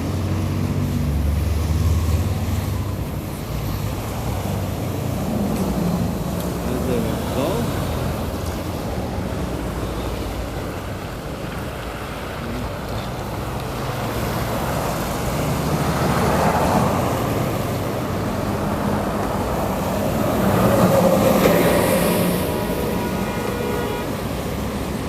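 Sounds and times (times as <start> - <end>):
vehicle engines running: 0.0 - 25.0
vehicle passing close: 13.2 - 25.0.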